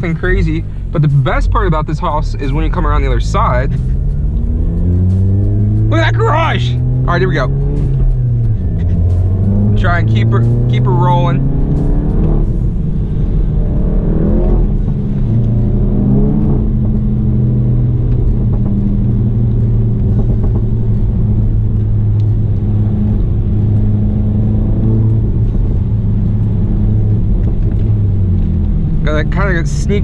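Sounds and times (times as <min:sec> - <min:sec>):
car engine from inside cabin: 0:00.0 - 0:30.0.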